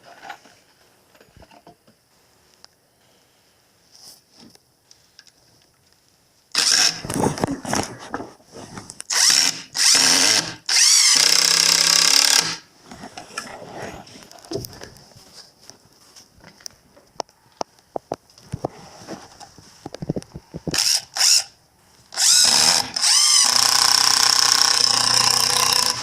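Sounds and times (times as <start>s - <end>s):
power drill running: 6.6s - 7.1s, 9.1s - 12.7s, 20.7s - 21.5s, 22.1s - 26.0s.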